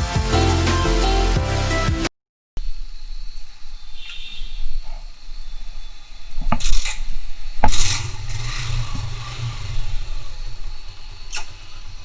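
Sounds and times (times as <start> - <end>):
short rushing noises: 6.6 - 12.0
sharp clicks: 11.3 - 11.7.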